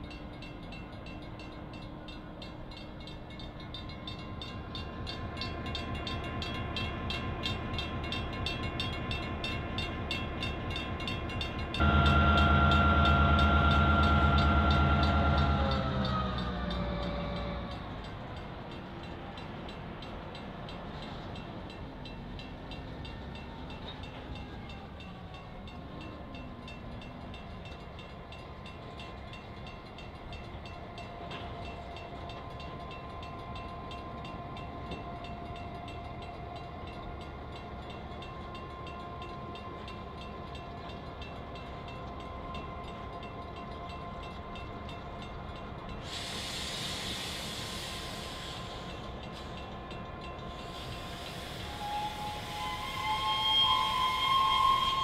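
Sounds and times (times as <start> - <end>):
diesel locomotive engine drone: 0.0 - 55.0
thin steady whine: 11.8 - 15.8.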